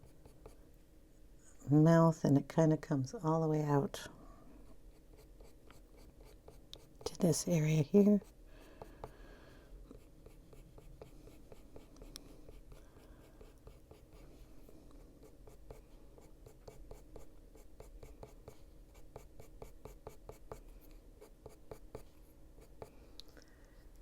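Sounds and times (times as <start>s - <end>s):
pencil scratching on paper: 0.0s - 0.6s, 4.9s - 7.4s, 9.9s - 14.4s, 15.2s - 22.9s.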